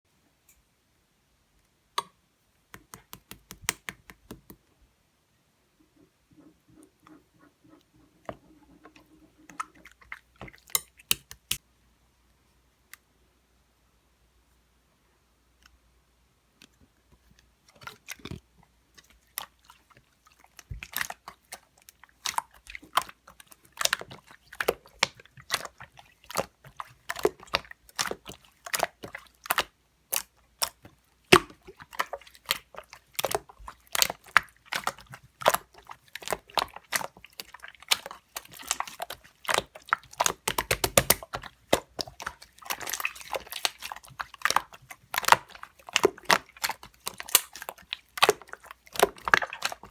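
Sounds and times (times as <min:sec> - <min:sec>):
sticky slime clicks and pops: 0:02.7 - 0:04.6, 0:40.2 - 0:42.2.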